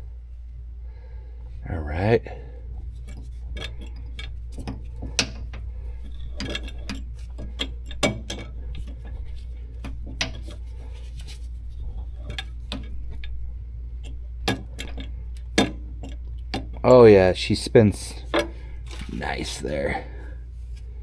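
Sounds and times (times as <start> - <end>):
steady low hum: 0.0 - 21.0
metal parts clicking and clinking: 3.0 - 13.4, 14.0 - 17.0, 18.1 - 19.6
sharp metal knocks: 6.4 - 8.6, 14.4 - 16.8.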